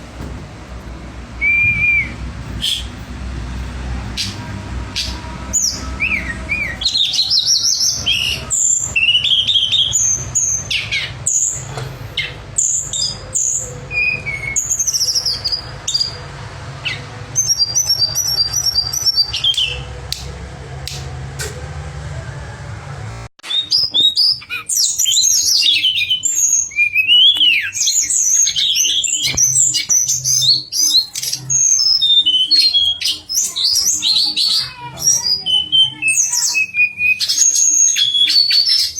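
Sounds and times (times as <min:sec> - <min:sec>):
low hum: 0:00.0 - 0:23.3
songbird singing: 0:01.3 - 0:21.6, 0:23.4 - 0:38.9.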